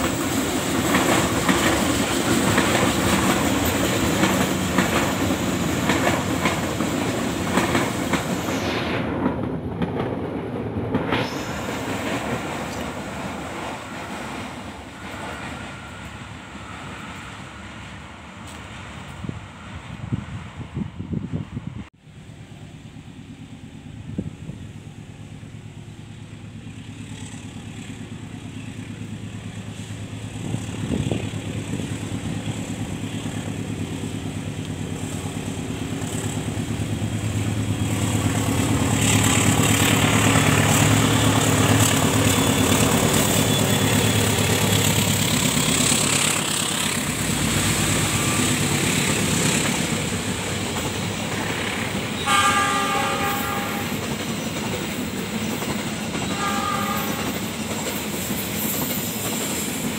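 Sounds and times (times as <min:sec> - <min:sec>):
coaches rolling over rails: 0:00.0 - 0:19.2, 0:22.9 - 0:59.9
diesel locomotive passing: 0:00.0 - 0:59.9
high horn-like tones: 0:52.2 - 0:54.1, 0:56.2 - 0:57.4.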